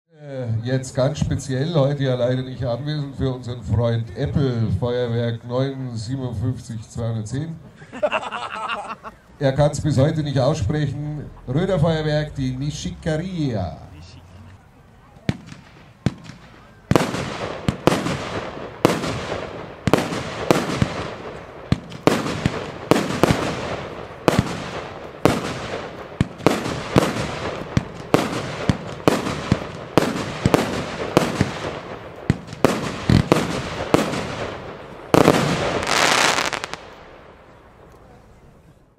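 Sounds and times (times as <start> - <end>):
firework bangs with crackle: 15.2 - 37.9
dense firework crackling: 15.2 - 38.6.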